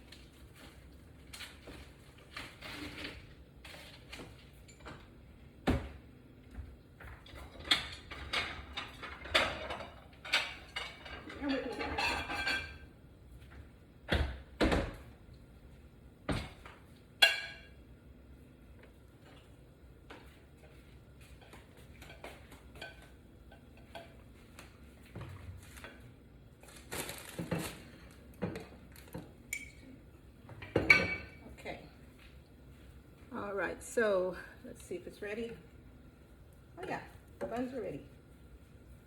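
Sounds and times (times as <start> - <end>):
dishes and utensils clattering: 7.1 - 12.9, 17.2 - 17.8, 21.2 - 24.3, 30.5 - 31.5.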